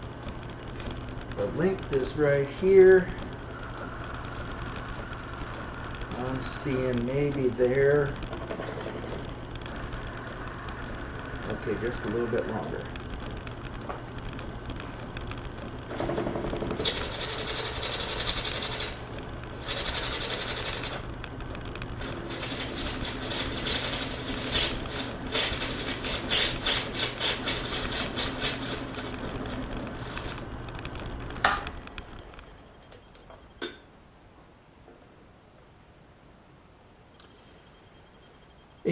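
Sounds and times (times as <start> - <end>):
metal lathe motor hum: 16.8 - 21.1, 22.0 - 30.4
lathe hissing cuts: 22.0 - 30.4.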